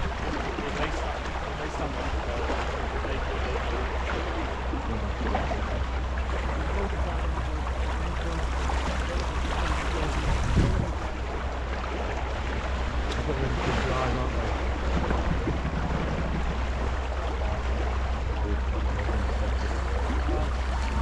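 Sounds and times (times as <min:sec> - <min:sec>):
water rushing along hull: 0:00.0 - 0:21.0
wind buffeting microphone: 0:06.5 - 0:11.7, 0:12.7 - 0:21.0.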